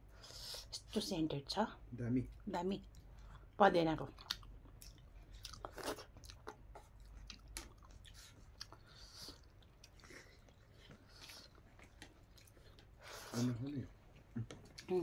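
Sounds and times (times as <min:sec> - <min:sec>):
chewing and mouth smacks: 0:04.0 - 0:13.0, 0:14.1 - 0:15.0.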